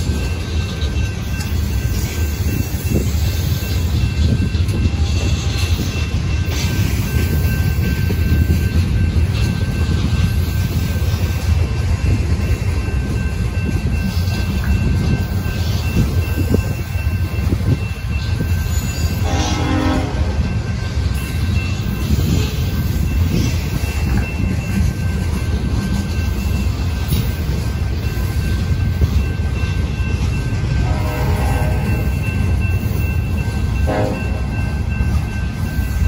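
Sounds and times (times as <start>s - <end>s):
freight train rumbling past: 0.0s - 36.0s
train horn: 19.2s - 20.4s, 30.8s - 32.1s, 33.8s - 34.5s.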